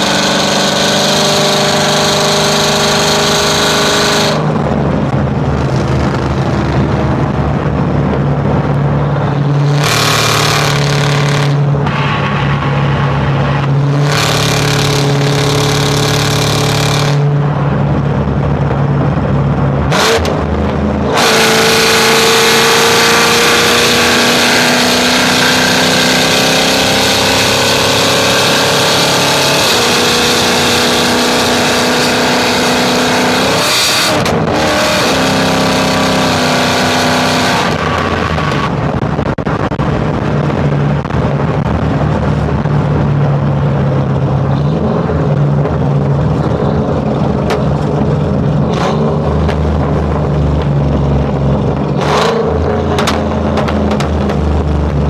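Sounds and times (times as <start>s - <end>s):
truck engine running: 1.8s - 23.5s, 37.5s - 55.0s.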